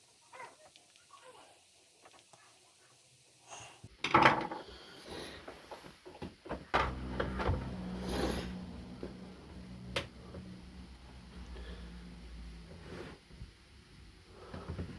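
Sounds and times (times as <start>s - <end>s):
low steady hum: 6.5s - 14.9s.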